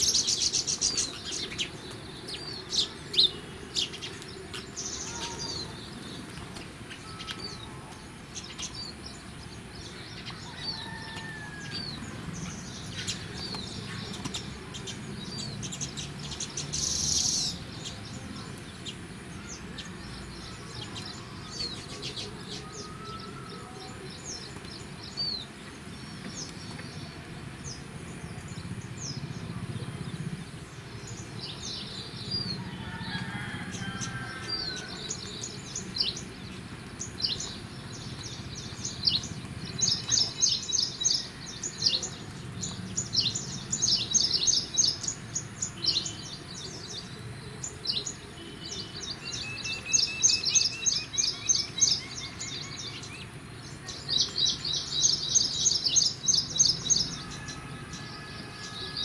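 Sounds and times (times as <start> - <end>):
birds chirping: 0.0 - 59.0
lower whistled bird calls: 6.9 - 9.2, 48.0 - 53.3.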